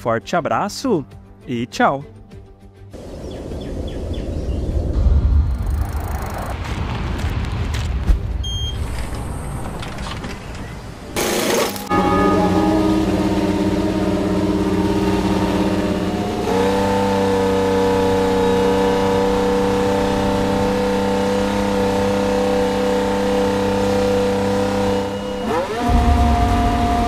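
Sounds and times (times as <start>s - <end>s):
racing car engine running: 11.2s - 27.0s.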